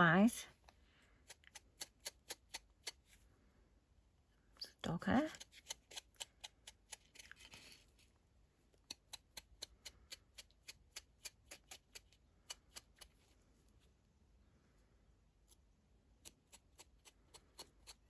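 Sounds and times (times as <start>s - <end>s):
soft rustle: 7.0s - 8.8s.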